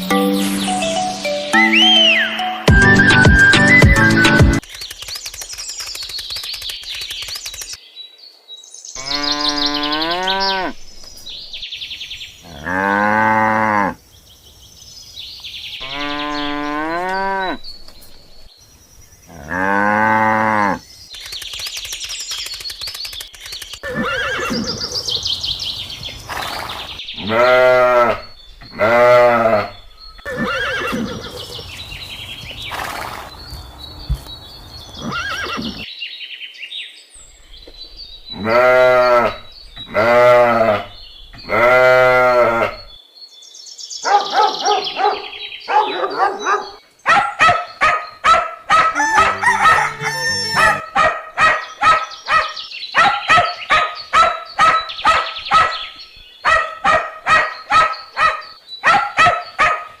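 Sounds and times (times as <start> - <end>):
farm animal calls: 23.5 - 35.9, 38.3 - 42.9, 44.0 - 60.0.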